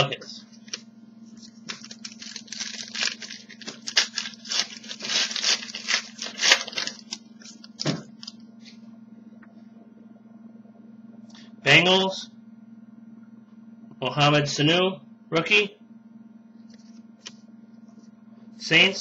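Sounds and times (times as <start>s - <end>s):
foil wrapper tearing and crinkling: 1.4s - 8.4s.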